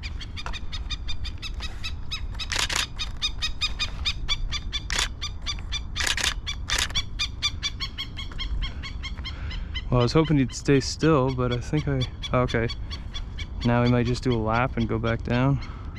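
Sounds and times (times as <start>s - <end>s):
camera shutter clicking: 2.4s - 3.2s, 4.9s - 5.2s, 6.0s - 7.0s.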